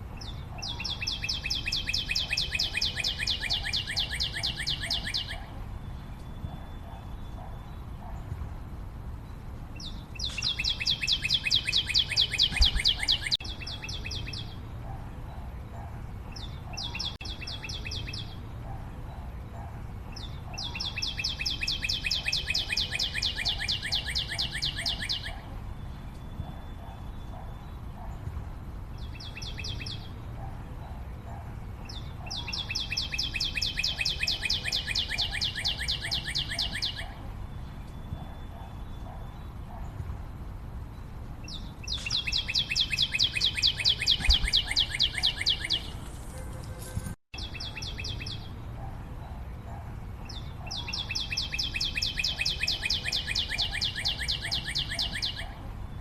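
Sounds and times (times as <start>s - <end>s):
faint bird chirps: 0.2s - 8.4s, 9.2s - 28.4s, 40.9s - 56.0s.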